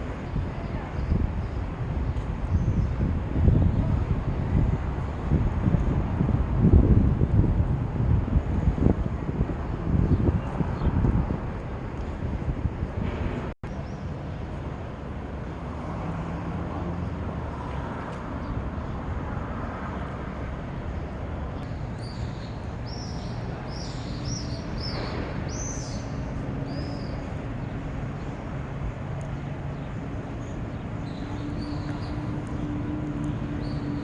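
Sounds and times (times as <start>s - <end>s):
city traffic hum: 0.0s - 34.0s.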